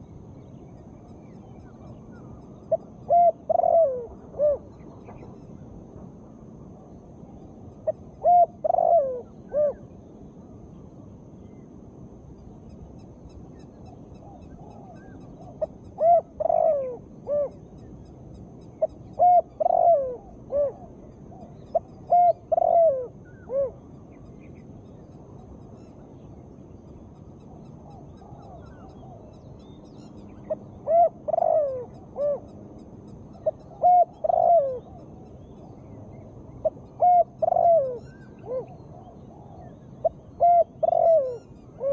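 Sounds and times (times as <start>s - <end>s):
steady background hiss: 0.0s - 41.9s
dove cooing: 2.7s - 4.7s, 7.8s - 9.8s, 14.2s - 17.6s, 18.8s - 23.8s, 30.5s - 32.5s, 33.4s - 35.2s, 36.6s - 41.9s.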